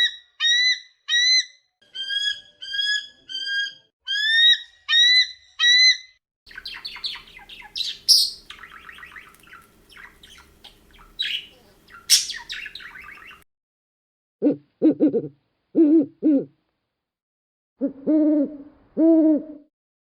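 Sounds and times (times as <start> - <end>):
birds chirping and squawking: 1.8 - 13.4
bird whistled calls: 6.5 - 13.4
faint steady hum: 6.5 - 13.4.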